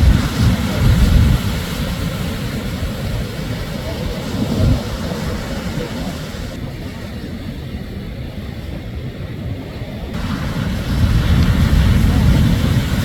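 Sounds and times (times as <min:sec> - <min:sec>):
surf rumbling on a beach: 0:00.0 - 0:13.0.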